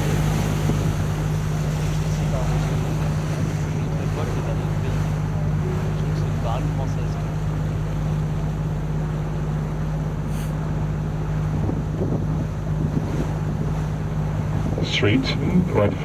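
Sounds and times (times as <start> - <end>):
wind noise on microphone: 0.0 - 2.1, 11.4 - 16.0
boat motor humming: 0.0 - 16.0.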